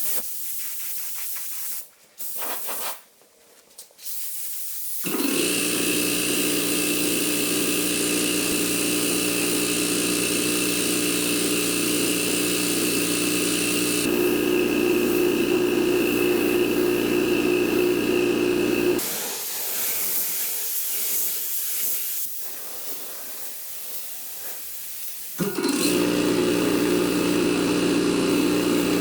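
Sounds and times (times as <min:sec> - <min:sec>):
paint spray gun hissing: 0:04.1 - 0:29.0.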